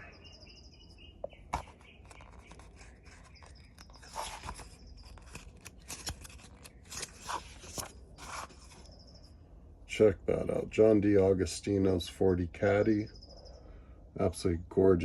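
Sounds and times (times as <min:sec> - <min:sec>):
magazine pages turning: 0:01.4 - 0:08.9.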